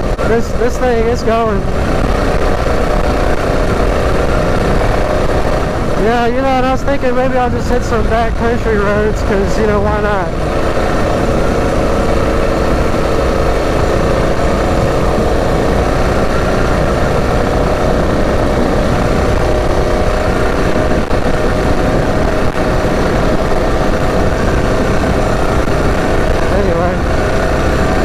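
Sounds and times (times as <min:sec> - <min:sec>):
small engine running: 0:00.0 - 0:28.0
wind buffeting on microphone: 0:00.0 - 0:28.0.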